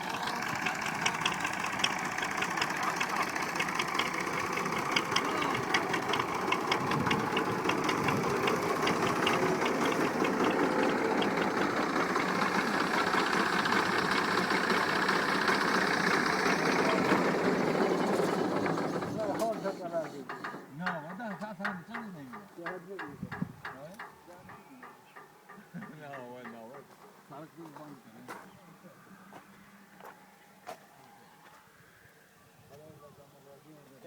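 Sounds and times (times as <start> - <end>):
old tractor engine running: 0.0 - 27.2.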